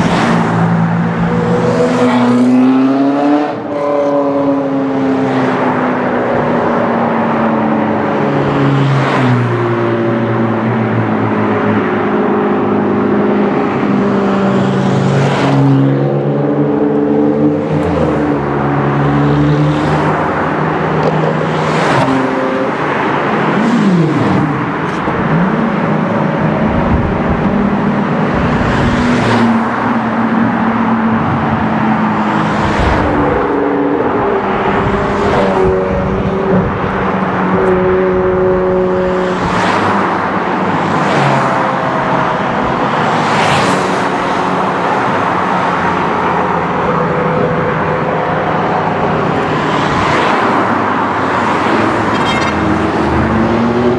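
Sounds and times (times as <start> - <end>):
sports car engines revving: 0.0 - 53.9.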